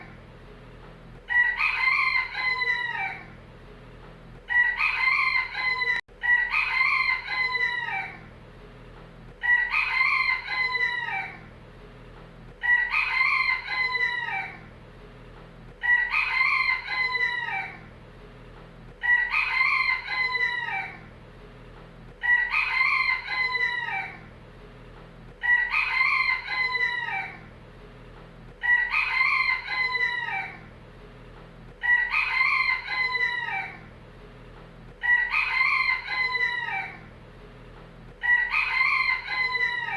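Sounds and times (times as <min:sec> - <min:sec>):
faint background hum: 0:00.0 - 0:39.9
rooster crowing: 0:01.3 - 0:03.4, 0:04.5 - 0:08.3, 0:09.4 - 0:11.5, 0:12.6 - 0:14.7, 0:15.8 - 0:17.9, 0:19.0 - 0:21.1, 0:22.2 - 0:24.3, 0:25.4 - 0:27.5, 0:28.6 - 0:30.7, 0:31.8 - 0:33.9, 0:35.0 - 0:37.1, 0:38.2 - 0:39.9.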